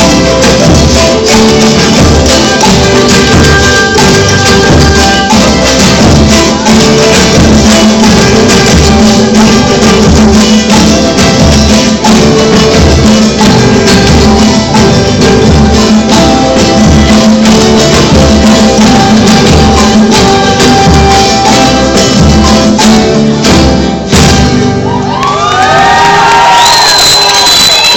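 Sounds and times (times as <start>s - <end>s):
steady beat: 0.0s - 24.7s
plucked strings: 0.0s - 25.2s.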